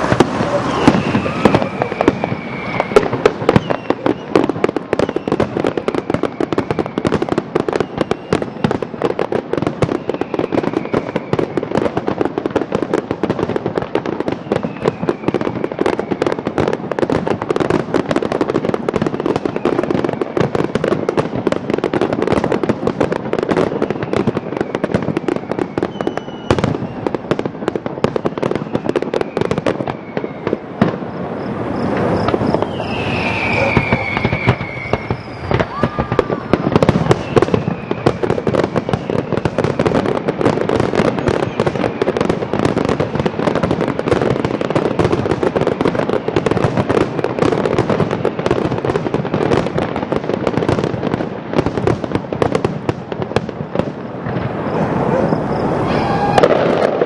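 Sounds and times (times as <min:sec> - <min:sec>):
fireworks bangs and crackles: 0:00.0 - 0:57.0
fireworks whistles: 0:00.0 - 0:57.0.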